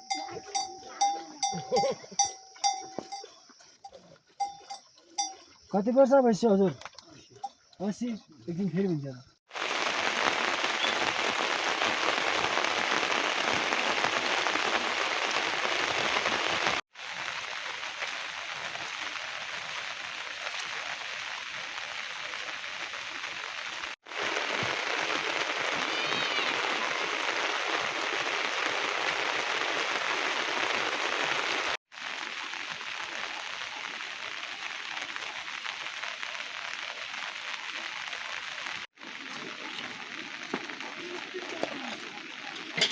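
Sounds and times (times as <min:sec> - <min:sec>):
heavy rain falling: 0:09.5 - 0:42.9.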